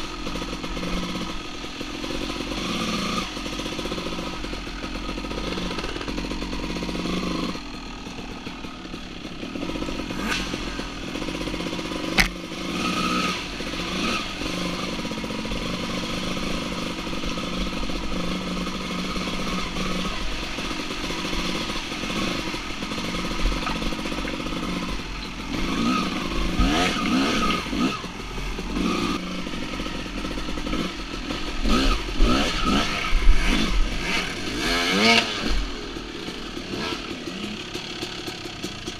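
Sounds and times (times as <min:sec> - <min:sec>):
two-stroke dirt bike engine revving: 0:00.0 - 0:38.9
sharp knock: 0:12.2 - 0:12.4.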